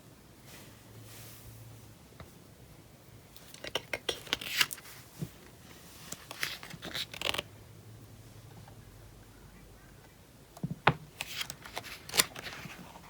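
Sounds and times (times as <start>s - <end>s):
paper pages rustling: 3.5s - 7.5s, 11.1s - 13.0s.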